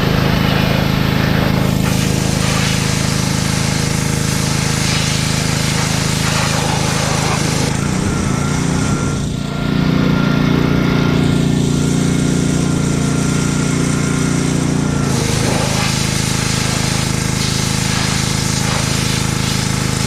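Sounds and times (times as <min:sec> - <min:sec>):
water spray hissing: 0:00.0 - 0:07.8, 0:15.1 - 0:20.0
small petrol engine running: 0:00.0 - 0:20.0.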